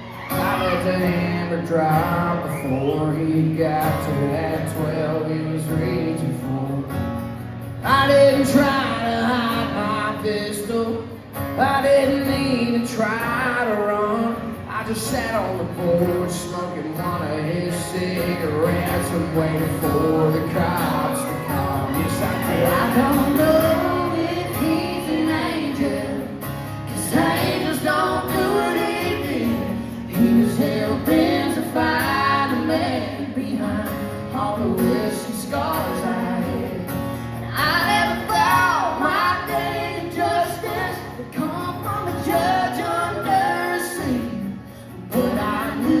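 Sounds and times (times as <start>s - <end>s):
live country band playing: 0.0s - 46.0s
woman singing: 20.0s - 26.4s, 27.0s - 36.8s, 37.5s - 44.5s.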